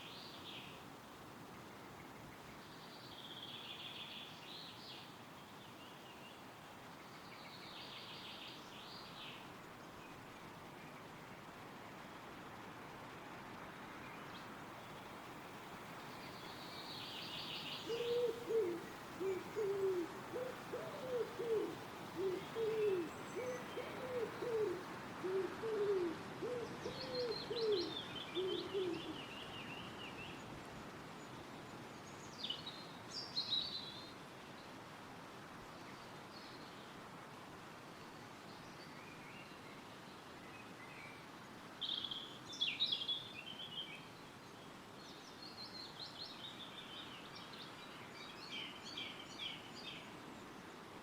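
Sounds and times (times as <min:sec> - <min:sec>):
wind rustling trees: 0:00.0 - 0:51.0
songbirds twittering: 0:14.0 - 0:25.5
bird hooting: 0:17.9 - 0:29.1.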